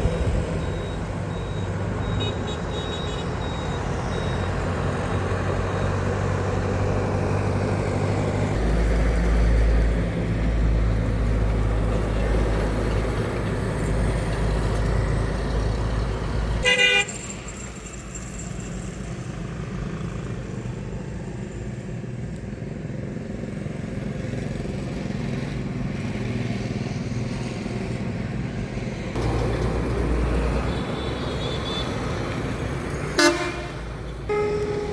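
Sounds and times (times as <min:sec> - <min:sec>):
truck engine rumbling: 0:00.0 - 0:20.1, 0:29.2 - 0:34.9
traffic noise: 0:00.0 - 0:34.9
truck horn toot: 0:00.1 - 0:03.9, 0:16.6 - 0:17.3, 0:33.0 - 0:34.9.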